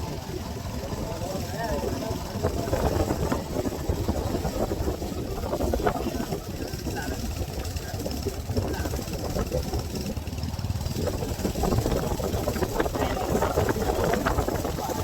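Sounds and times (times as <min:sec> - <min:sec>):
motorcycle engine drone: 0:00.0 - 0:15.0.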